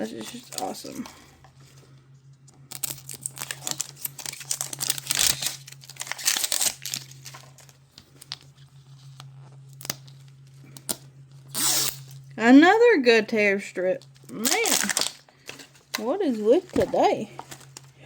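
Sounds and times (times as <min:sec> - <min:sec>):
steady low hum: 0:00.0 - 0:18.0
plastic wrap crinkling and tearing: 0:02.4 - 0:12.3, 0:14.0 - 0:18.0.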